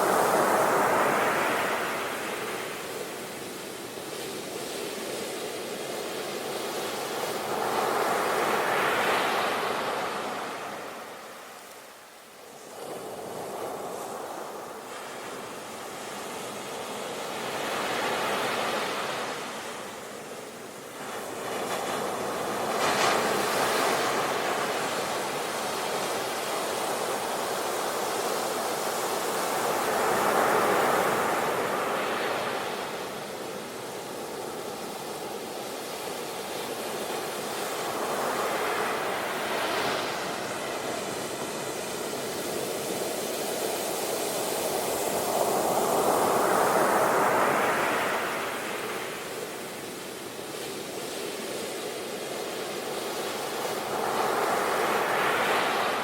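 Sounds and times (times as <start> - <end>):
sea waves breaking on shore: 12.6 - 56.0.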